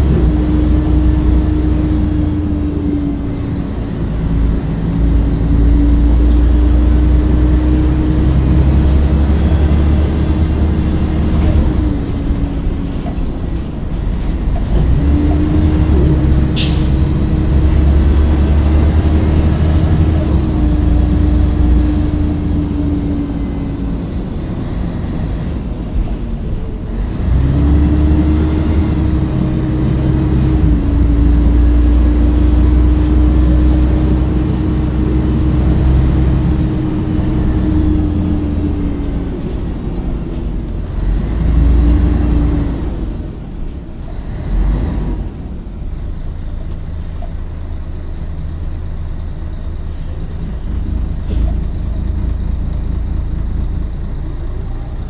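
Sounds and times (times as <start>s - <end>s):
bus diesel engine running: 0.0s - 55.0s
short sharp squeak: 49.5s - 51.9s.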